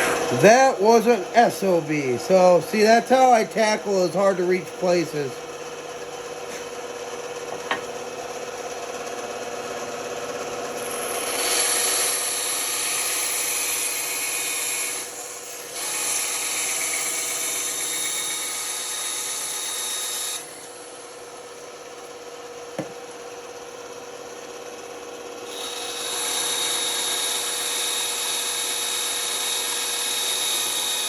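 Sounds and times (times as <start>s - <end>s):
saw blade cutting wood: 0.0s - 5.3s, 10.8s - 21.0s, 25.4s - 31.0s
band saw humming: 0.0s - 5.8s.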